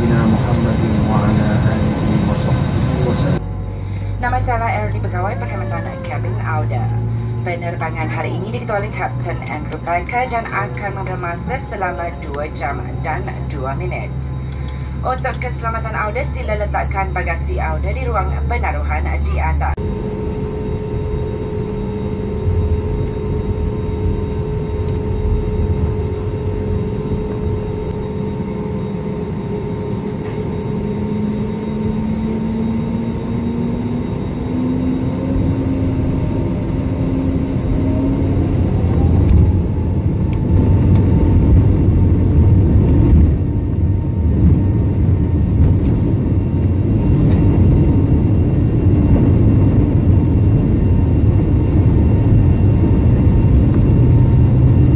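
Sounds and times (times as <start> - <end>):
airplane cabin rumble: 0.0 - 54.9
jet engine whine rising: 0.0 - 54.9.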